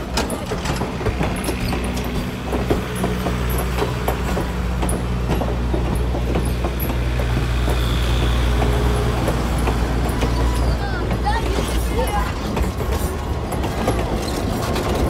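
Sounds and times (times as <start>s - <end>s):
diesel engine drone: 0.0s - 15.0s
train wheels clattering: 0.0s - 15.0s
faint wheel squeal: 7.6s - 9.1s, 10.0s - 13.1s.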